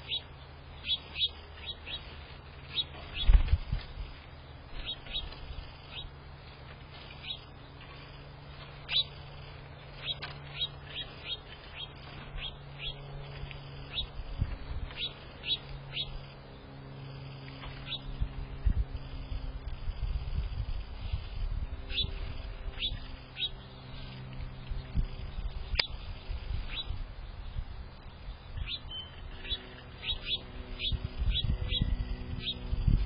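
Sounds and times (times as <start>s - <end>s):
low steady hum: 0.0s - 33.0s
small birds chirping: 0.0s - 33.0s.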